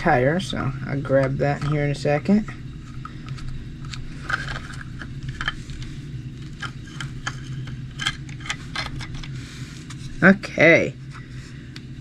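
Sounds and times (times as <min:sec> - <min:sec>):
steady low hum: 0:00.0 - 0:12.0
small parts and tools clicking: 0:03.0 - 0:09.4.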